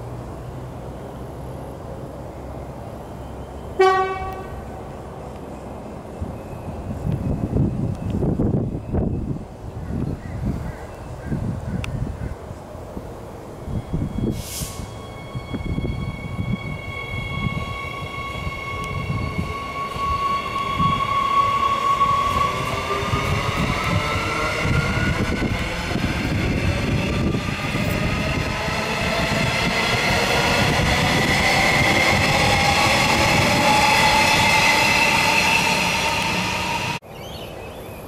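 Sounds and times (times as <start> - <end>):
train wheels rumbling on track: 11.3 - 37.0
electric train motor whine: 13.7 - 37.0.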